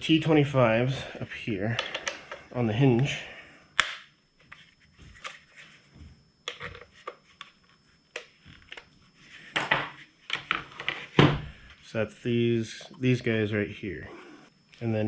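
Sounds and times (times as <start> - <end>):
tools and parts clicking: 1.7 - 2.4, 6.4 - 7.2.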